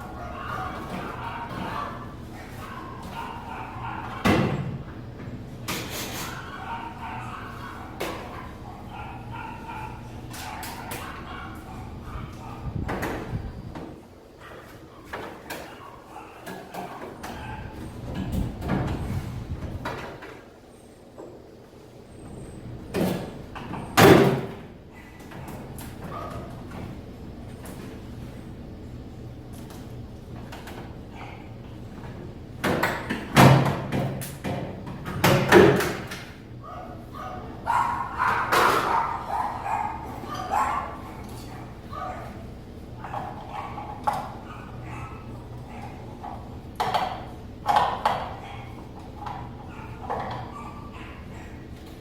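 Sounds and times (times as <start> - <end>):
dog barking: 0.0 - 4.8, 6.0 - 13.2, 14.4 - 18.3, 24.1 - 26.9, 36.6 - 51.8.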